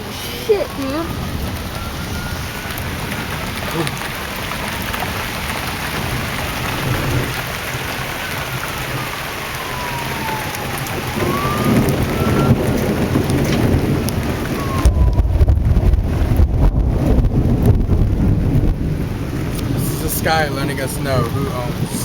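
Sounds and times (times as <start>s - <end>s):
heavy rain: 0.0s - 22.0s
thunder rumble: 0.0s - 22.0s.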